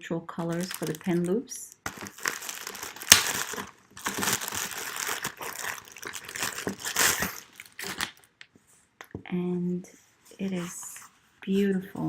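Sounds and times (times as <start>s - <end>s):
plastic packaging crinkling: 0.3s - 8.3s.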